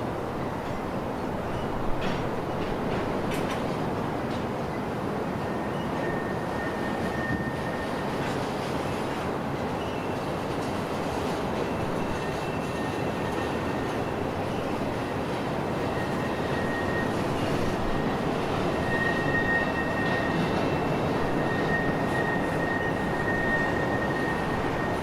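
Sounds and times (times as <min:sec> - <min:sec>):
freight train wheels rumbling: 0:00.0 - 0:25.0
high wheel squeal: 0:05.4 - 0:08.9, 0:11.6 - 0:25.0.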